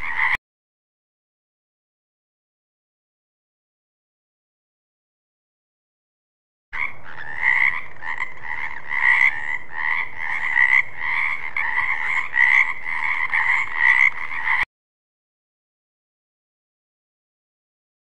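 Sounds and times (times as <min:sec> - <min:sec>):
frogs croaking in chorus: 0:00.0 - 0:00.4, 0:06.8 - 0:14.7.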